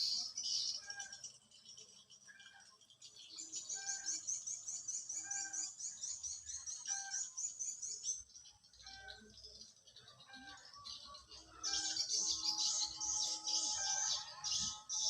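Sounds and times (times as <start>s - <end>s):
high bird chirps: 0.0s - 1.8s, 10.0s - 15.0s.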